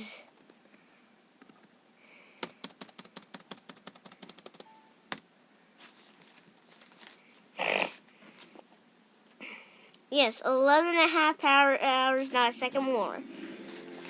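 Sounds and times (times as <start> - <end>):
fast sharp mechanical clicks: 2.4 - 5.2.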